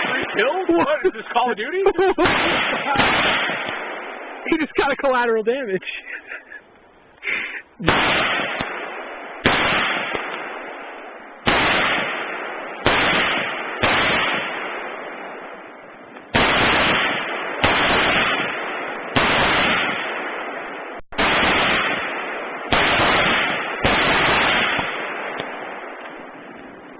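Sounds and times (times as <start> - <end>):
loud gunshot-like bangs: 0.0 - 5.0, 7.8 - 15.5, 16.3 - 26.0.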